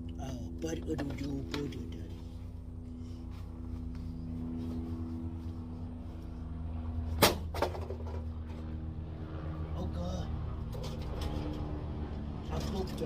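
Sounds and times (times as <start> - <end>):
low mechanical hum: 0.0 - 13.0
sharp bang: 7.2 - 7.9.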